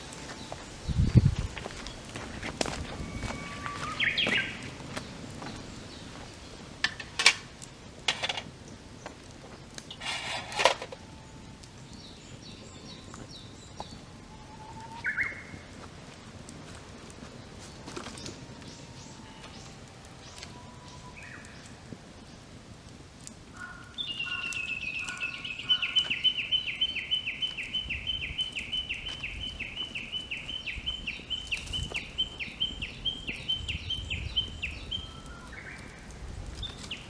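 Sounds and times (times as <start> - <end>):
birds calling: 0.0 - 15.7, 23.5 - 37.0
campfire crackling and popping: 0.0 - 37.0.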